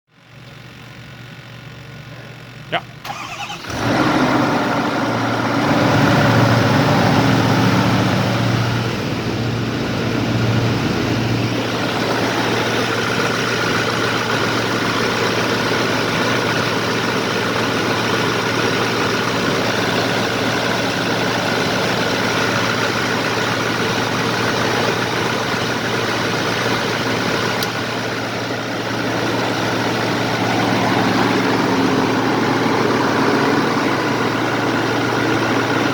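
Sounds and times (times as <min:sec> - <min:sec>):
diesel engine idling: 0:00.2 - 0:35.9.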